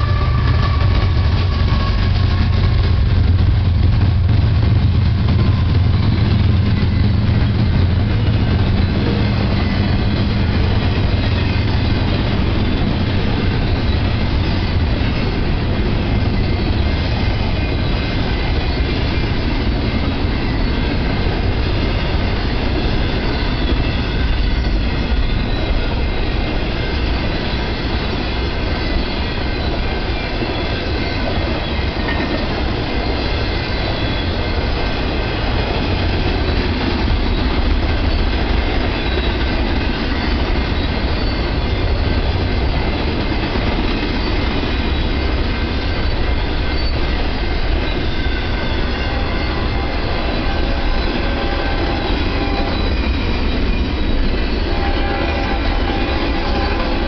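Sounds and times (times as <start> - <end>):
steel wheels rumbling on rail: 0.0 - 57.0
faint wheel squeal: 21.8 - 35.1, 37.2 - 43.0, 43.9 - 57.0.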